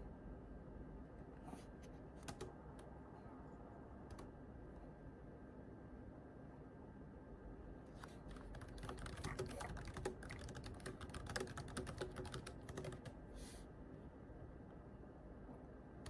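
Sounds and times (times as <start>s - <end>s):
computer keyboard typing: 2.2s - 2.5s, 8.3s - 13.2s.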